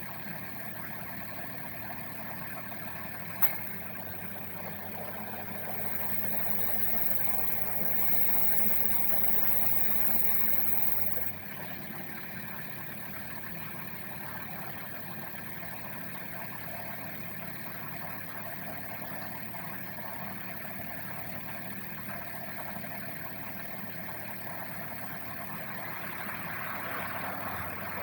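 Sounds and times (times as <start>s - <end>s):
car engine idling: 0.0s - 28.0s
sharp click: 3.4s - 3.8s.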